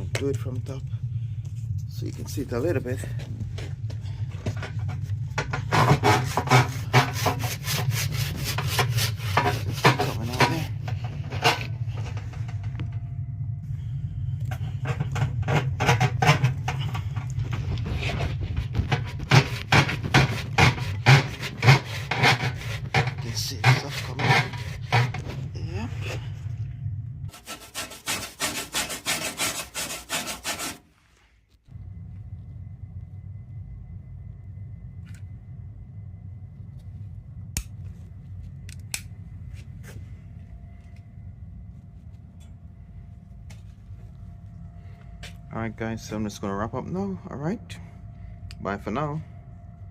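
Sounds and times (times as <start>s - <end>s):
oil burner rumble: 0.0s - 30.0s, 31.0s - 49.9s
scraping and knocking in flue: 0.0s - 31.8s
steady low hum: 0.0s - 49.9s.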